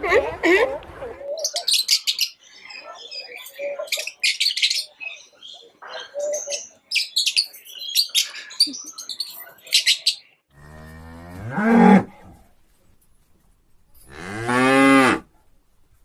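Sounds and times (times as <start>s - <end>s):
bird chirping: 1.2s - 10.4s
cow mooing: 10.5s - 12.2s, 14.1s - 15.3s.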